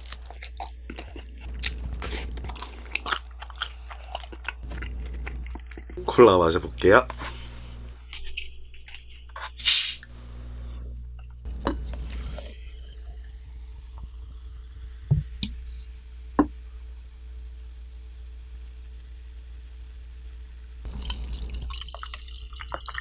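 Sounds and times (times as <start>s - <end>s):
cola can opening fizz: 9.6s - 10.1s, 20.8s - 23.0s.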